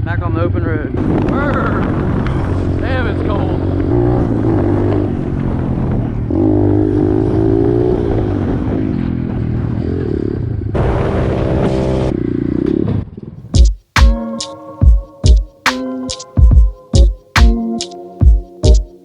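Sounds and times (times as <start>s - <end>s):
pit bike engine revving: 1.0s - 12.9s.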